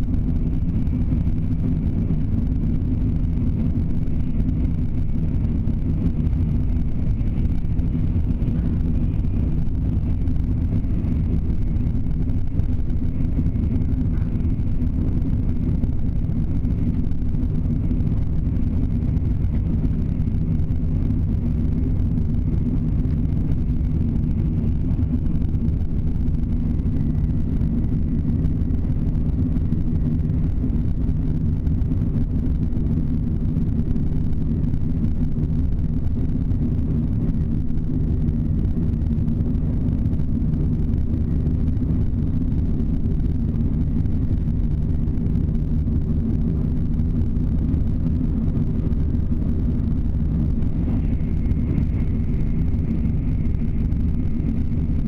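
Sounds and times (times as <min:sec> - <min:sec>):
train rumble heard inside carriage: 0:00.0 - 0:55.0.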